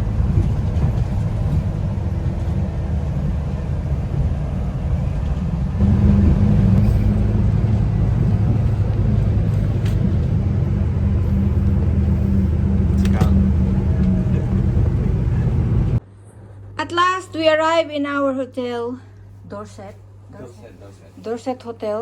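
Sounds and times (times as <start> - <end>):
vehicle rumble from inside: 0.0 - 16.0.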